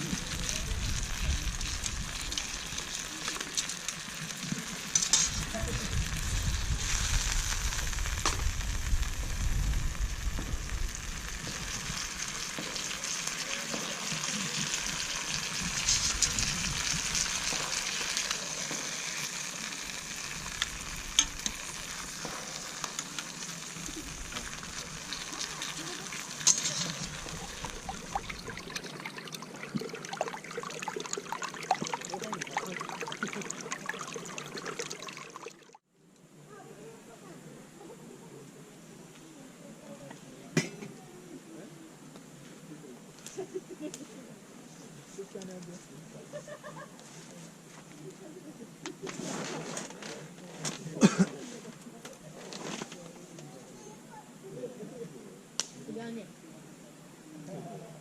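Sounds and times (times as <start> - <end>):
food sizzling in a frying pan: 0.0 - 35.7
low rumbling: 5.3 - 12.2.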